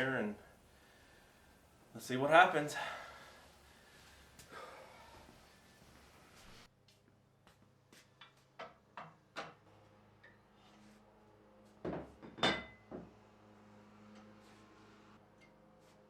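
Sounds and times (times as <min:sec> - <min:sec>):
faint steady hum: 0:00.0 - 0:06.7.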